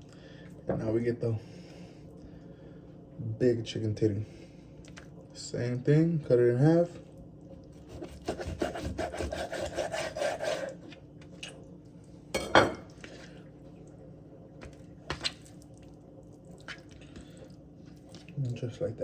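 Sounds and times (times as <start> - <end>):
knife sawing through raw meat: 7.8 - 10.9.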